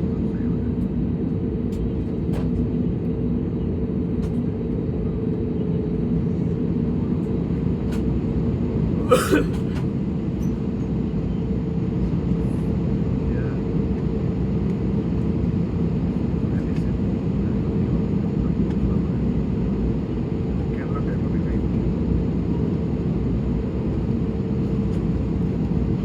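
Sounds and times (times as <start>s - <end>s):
aircraft cabin engine drone: 0.0s - 26.0s.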